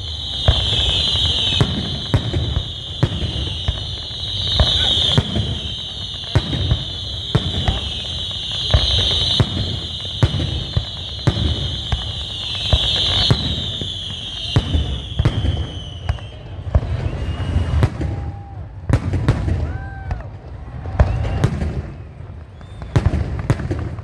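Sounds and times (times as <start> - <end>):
firework shells bursting: 0.0 - 16.2
shrill firework whistle: 0.0 - 24.0.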